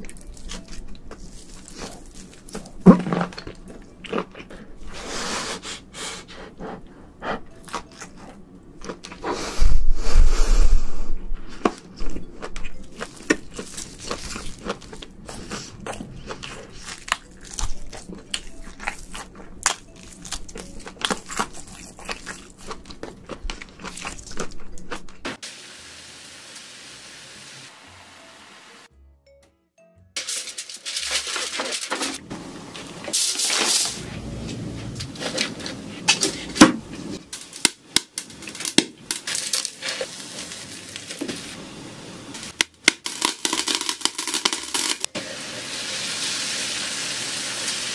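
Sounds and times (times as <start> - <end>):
crunching shrimp shells: 37.4 - 41.2, 42.5 - 45.0.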